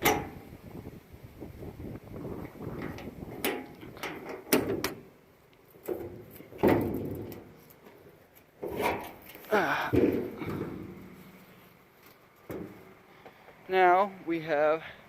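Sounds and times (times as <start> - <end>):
car hood knocks and clanks: 5.9 - 7.5.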